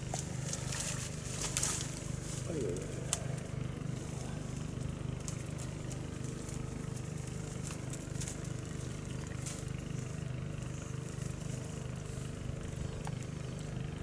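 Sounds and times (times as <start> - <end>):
water pump engine running: 0.0 - 14.0.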